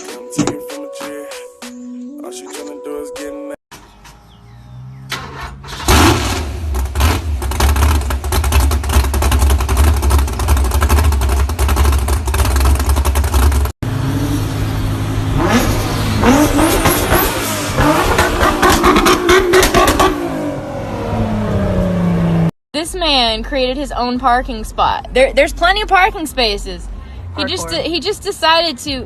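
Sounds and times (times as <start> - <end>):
car engine running hard: 4.1 - 22.5
engine revving up: 4.5 - 11.0, 13.8 - 22.5.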